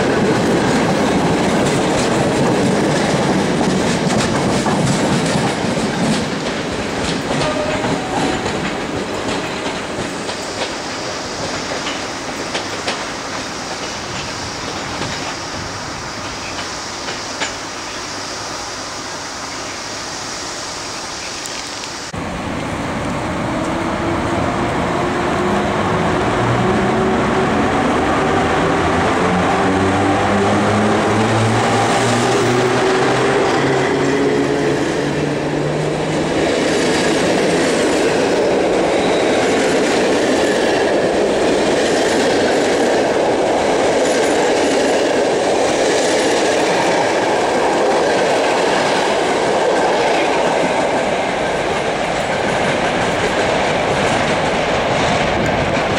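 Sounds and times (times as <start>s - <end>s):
train wheels clacking over rail joints: 0.0s - 18.0s, 30.3s - 55.9s
electric locomotive whine: 0.0s - 55.9s.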